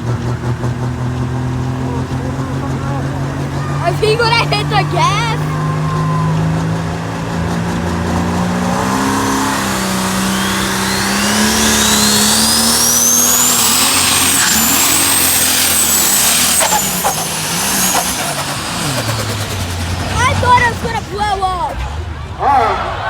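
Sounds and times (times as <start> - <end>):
tractor diesel engine under load: 0.0 - 22.5
high-pitched whine: 9.0 - 20.0.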